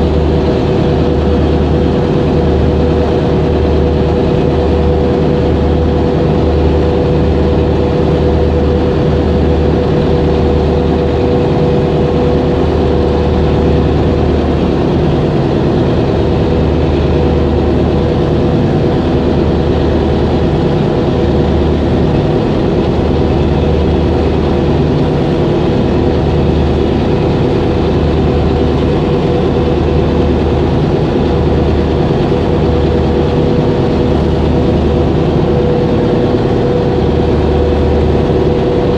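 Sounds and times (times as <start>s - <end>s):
heavy engine droning: 0.0s - 38.9s.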